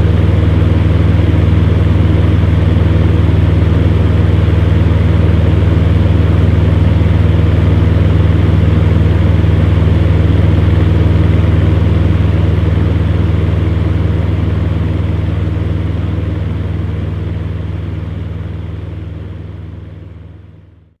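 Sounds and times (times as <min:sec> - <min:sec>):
electric fan heater humming: 0:00.0 - 0:20.9.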